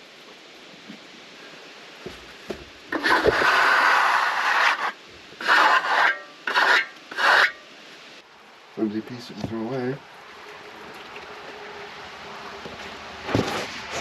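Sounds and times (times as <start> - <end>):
wood scraping over wood: 2.0 - 7.6.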